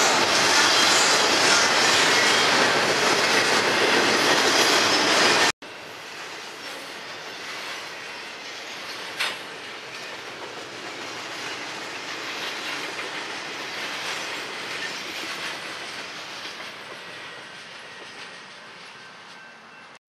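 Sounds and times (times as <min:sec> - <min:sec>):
railroad cars rumbling past: 0:00.0 - 0:20.0
wheels clickety-clack: 0:08.9 - 0:19.4.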